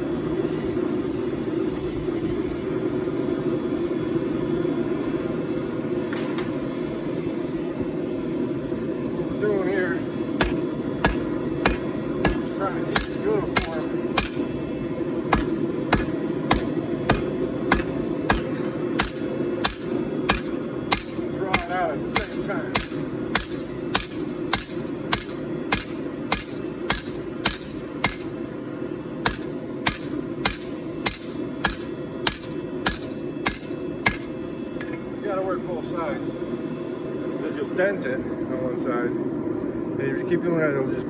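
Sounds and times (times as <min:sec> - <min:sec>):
hammer striking steel on anvil: 0:10.4 - 0:14.6, 0:15.3 - 0:28.5, 0:29.2 - 0:34.4.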